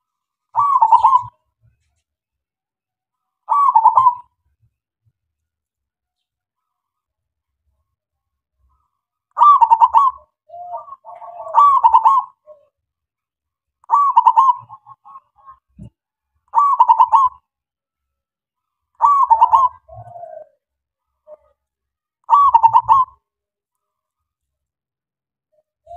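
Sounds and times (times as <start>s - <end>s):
dove cooing: 0.5s - 1.4s, 3.5s - 4.3s, 9.4s - 12.8s, 13.9s - 16.0s, 16.6s - 17.4s, 19.0s - 21.6s, 22.3s - 23.2s, 25.5s - 25.9s.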